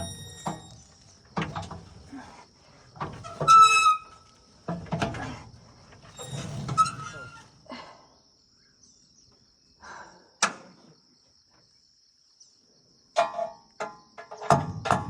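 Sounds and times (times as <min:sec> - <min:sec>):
sharp metallic clanks: 0:00.0 - 0:02.1
insect trill: 0:00.0 - 0:14.4.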